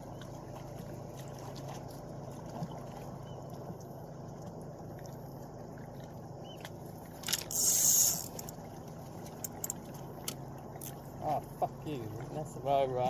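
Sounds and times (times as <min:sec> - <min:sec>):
low background hum: 0:00.0 - 0:13.0
fishing line whizzing off reel: 0:07.2 - 0:08.5
fishing reel click: 0:07.2 - 0:08.5.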